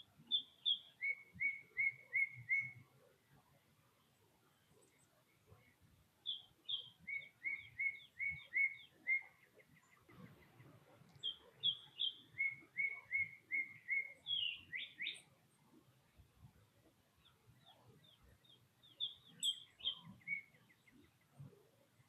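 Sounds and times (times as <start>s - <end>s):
songbird whistling song: 0.0s - 3.1s, 6.2s - 15.4s, 17.2s - 21.6s.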